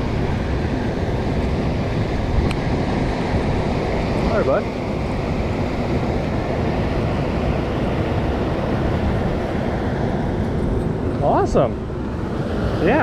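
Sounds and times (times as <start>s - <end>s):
wind on microphone: 0.0s - 13.0s
river water rushing over dam: 12.0s - 13.0s.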